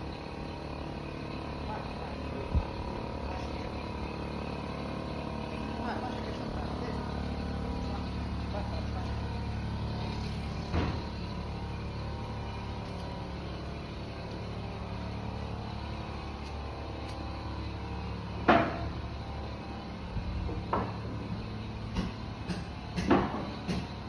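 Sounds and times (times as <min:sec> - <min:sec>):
engine humming: 0:00.0 - 0:24.0.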